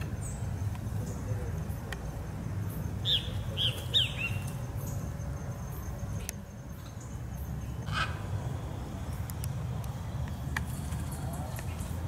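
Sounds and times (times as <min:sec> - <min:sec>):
small bird chirping: 0:00.0 - 0:08.0.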